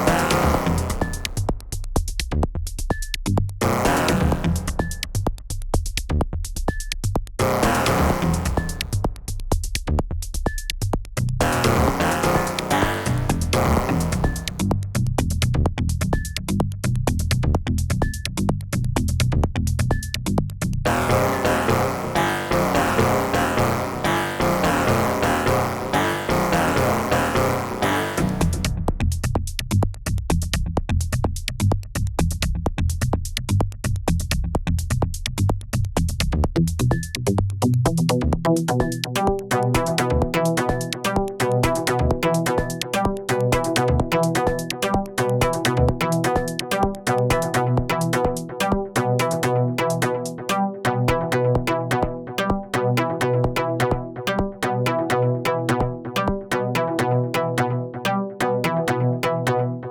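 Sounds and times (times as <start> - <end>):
drum machine hits: 0.0 - 1.4, 3.6 - 5.1, 7.4 - 9.1, 11.4 - 14.7, 20.9 - 29.0, 38.8 - 48.9
pitched synth notes: 0.0 - 1.4, 3.6 - 5.0, 7.4 - 8.9, 11.4 - 14.6, 20.9 - 28.7
pulsing synth bass line: 0.0 - 1.6, 3.6 - 5.2, 7.4 - 9.3, 11.4 - 16.6, 20.8 - 29.4, 36.4 - 59.9
drum machine percussion ticking: 0.0 - 57.1.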